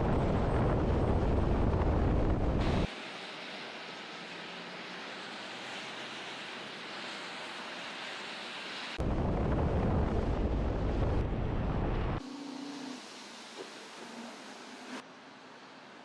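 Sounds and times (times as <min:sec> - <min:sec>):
storm wind hissing: 0:00.0 - 0:02.9
wind buffeting microphone: 0:00.0 - 0:02.9, 0:09.0 - 0:12.2.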